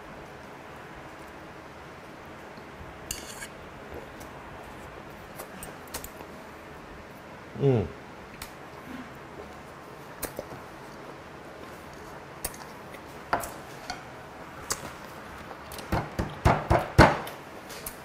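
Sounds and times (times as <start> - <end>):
chewing: 8.4 - 14.0, 14.6 - 15.9
wet mouth sounds: 10.1 - 11.0.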